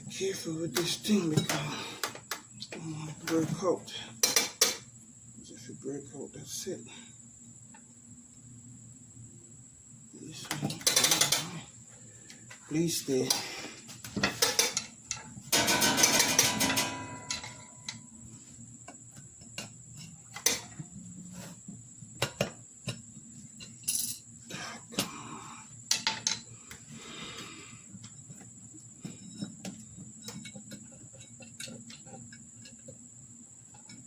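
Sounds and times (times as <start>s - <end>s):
hand tools clicking and scraping on metal: 10.5s - 11.6s, 13.2s - 18.0s, 29.0s - 33.0s.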